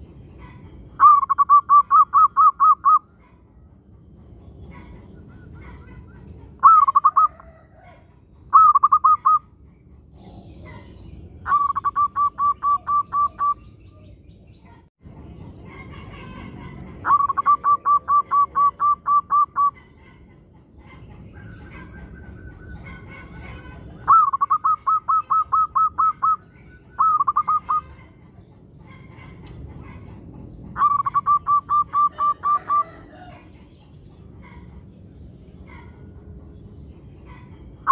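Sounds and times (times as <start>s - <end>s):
dove rapid staccato cooing: 0.4s - 3.5s, 4.3s - 9.6s, 11.5s - 13.6s, 15.3s - 34.9s.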